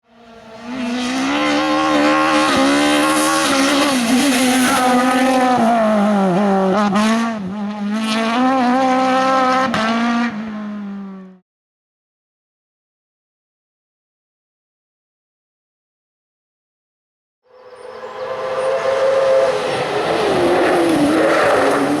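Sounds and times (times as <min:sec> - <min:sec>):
race car engine at high revs: 0:00.0 - 0:11.4, 0:17.5 - 0:22.0.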